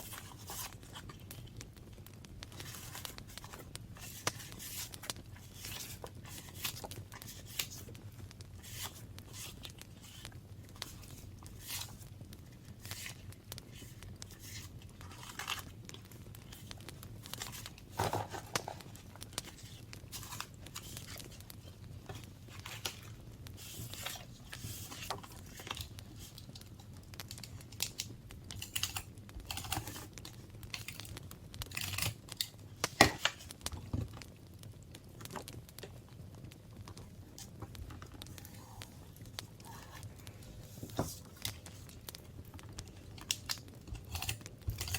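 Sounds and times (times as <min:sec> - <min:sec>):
paper rustling and tearing: 0:02.5 - 0:07.9, 0:08.6 - 0:12.0, 0:12.7 - 0:26.5.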